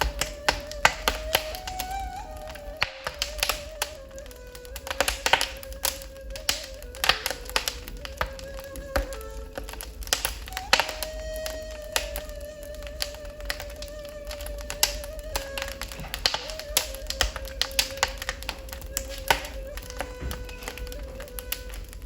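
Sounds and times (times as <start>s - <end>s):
ney flute long notes: 0.0s - 22.0s
wood fire crackling and popping: 0.0s - 22.0s.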